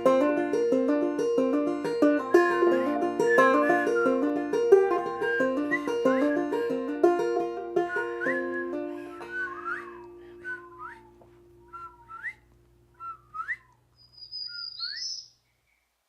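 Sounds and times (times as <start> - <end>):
banjo chord: 0.0 - 10.4.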